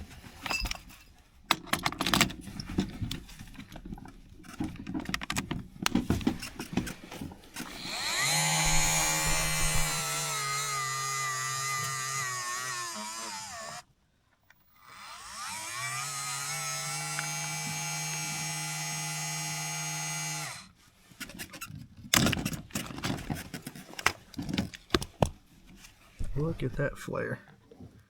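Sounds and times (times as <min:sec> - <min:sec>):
clicks and knocks of handling: 0:00.4 - 0:07.7, 0:21.2 - 0:26.0
electric tool motor whining: 0:07.5 - 0:20.7.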